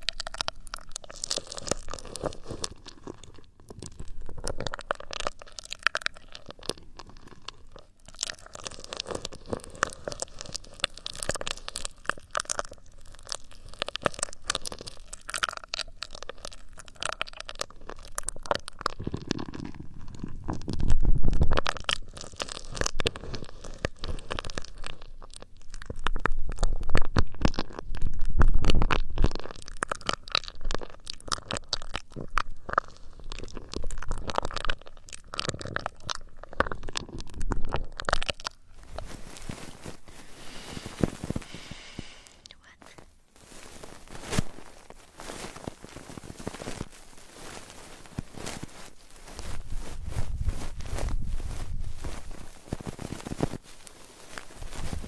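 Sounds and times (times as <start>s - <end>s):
hands rubbing microphone: 38.8s - 42.3s, 43.4s - 55.0s.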